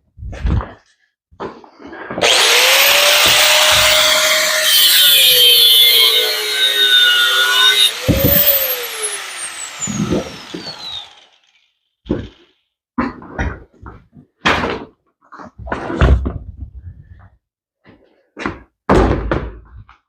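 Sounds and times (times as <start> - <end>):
electric grinder cutting metal: 2.2 - 12.5.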